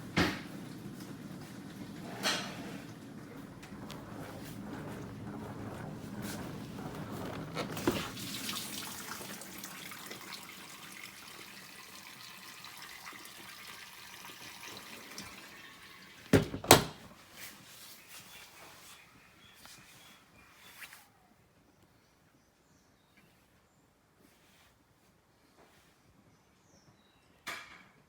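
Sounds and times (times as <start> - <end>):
water splashing in dishwasher: 6.6 - 17.0.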